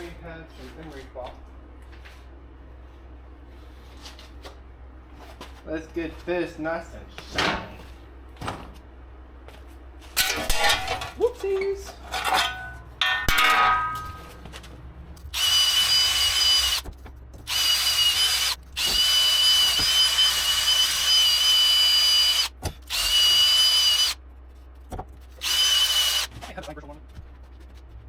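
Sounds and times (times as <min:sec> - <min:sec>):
metallic clatter: 0:12.1 - 0:14.5
power drill whining: 0:15.3 - 0:16.9, 0:17.5 - 0:24.2, 0:25.4 - 0:26.3.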